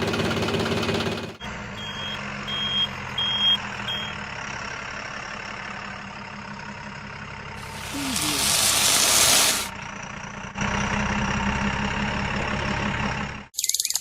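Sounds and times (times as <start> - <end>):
engine hum: 0.0 - 13.5
reversing alarm beeping: 1.4 - 4.2.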